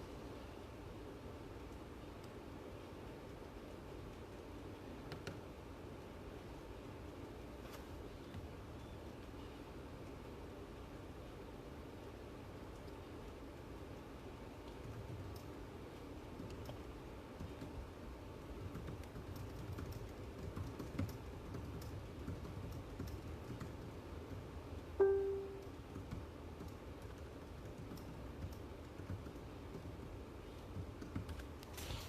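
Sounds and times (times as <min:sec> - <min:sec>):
typing on keyboard: 0:14.6 - 0:15.6, 0:16.3 - 0:17.8, 0:18.4 - 0:31.6.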